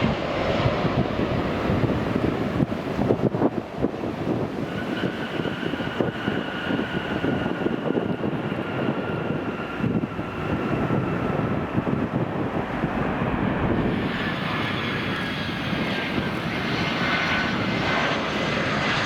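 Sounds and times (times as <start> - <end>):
jet engines rumbling: 0.0 - 19.0
wind buffeting microphone: 0.0 - 19.0
faint engine whine: 4.6 - 19.0.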